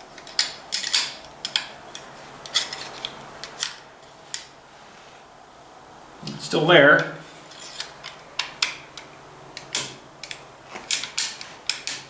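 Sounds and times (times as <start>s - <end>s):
metal tube clinking and scraping: 0.3s - 3.7s, 7.2s - 8.2s.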